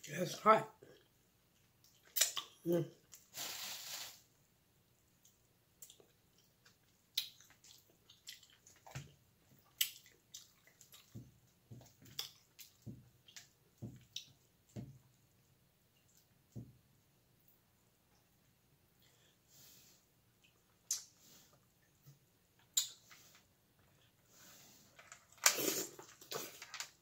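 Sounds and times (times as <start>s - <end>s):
wet chewing and lip-smacking: 5.2s - 14.5s, 22.6s - 23.1s.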